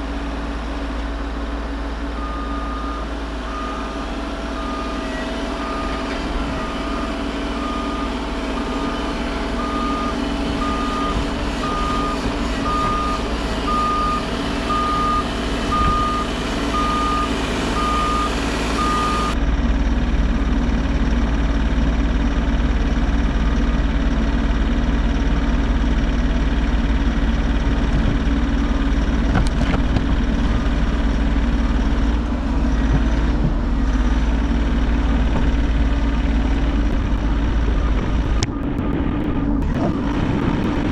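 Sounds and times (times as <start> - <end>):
excavator diesel engine running: 0.0 - 40.9
travel alarm beeping: 9.6 - 19.4.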